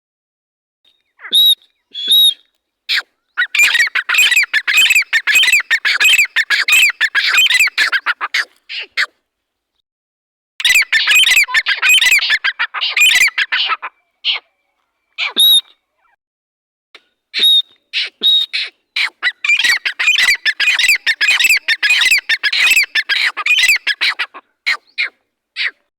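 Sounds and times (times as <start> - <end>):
francolin calling: 3.3 - 8.1, 17.4 - 25.7.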